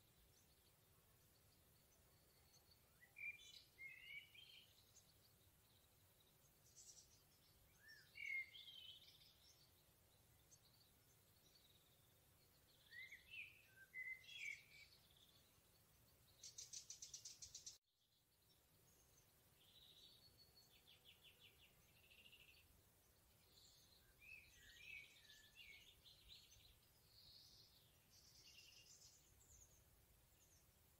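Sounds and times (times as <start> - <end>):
songbirds warbling: 0.0 - 30.9.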